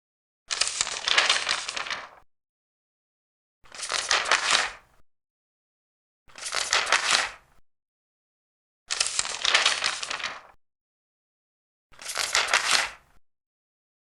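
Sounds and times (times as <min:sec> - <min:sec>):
paper pages turning: 0:00.5 - 0:02.2, 0:03.7 - 0:04.8, 0:06.3 - 0:07.4, 0:08.9 - 0:10.6, 0:12.0 - 0:13.0.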